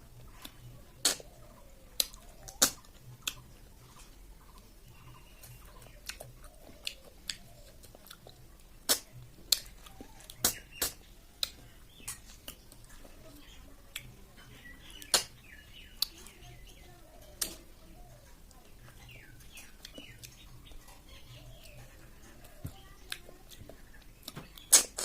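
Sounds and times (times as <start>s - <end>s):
chewing with mouth clicks: 0.2s - 1.3s, 1.9s - 4.7s, 5.4s - 13.1s, 13.9s - 14.2s, 15.9s - 16.4s, 17.3s - 20.8s, 21.5s - 25.0s.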